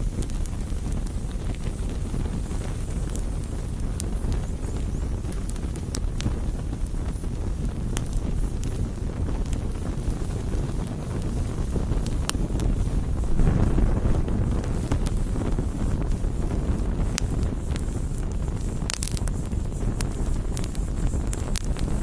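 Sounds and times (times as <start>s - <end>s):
campfire crackling and rumbling: 0.0s - 22.0s.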